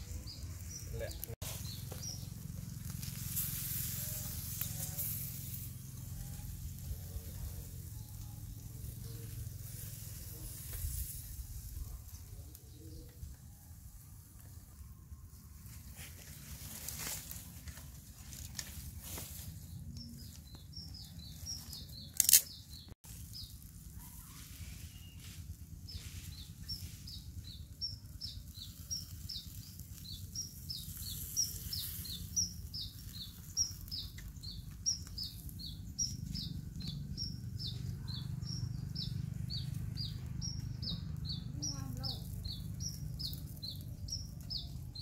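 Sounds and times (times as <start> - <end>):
bird chirping: 0.0 - 2.8, 24.2 - 45.0.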